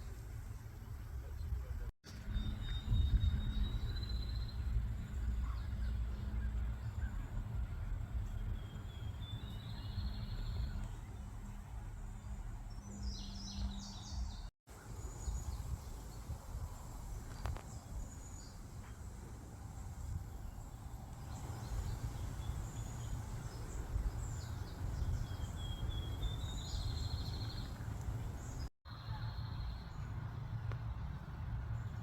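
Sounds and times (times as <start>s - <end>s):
low rumble: 0.2s - 14.5s
bird chirps: 2.1s - 11.6s, 12.2s - 15.6s.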